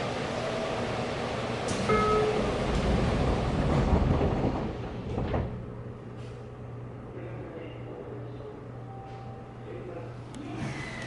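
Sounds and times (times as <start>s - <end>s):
train wheels rumbling on track: 0.0s - 5.8s.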